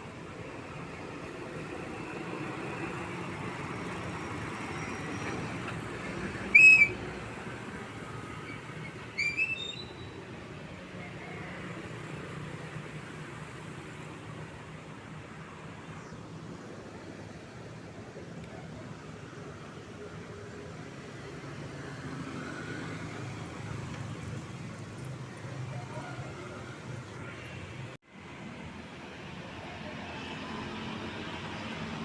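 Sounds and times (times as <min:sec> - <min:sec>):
passing truck traffic: 0:00.0 - 0:32.0
shrill whistle-like blasts: 0:06.5 - 0:07.0, 0:09.1 - 0:10.2.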